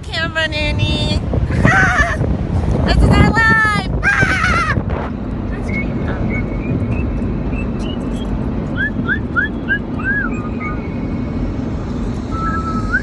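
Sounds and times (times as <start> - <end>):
car driving rumble: 0.0 - 13.0
dogs whining: 8.8 - 11.0, 12.3 - 13.0.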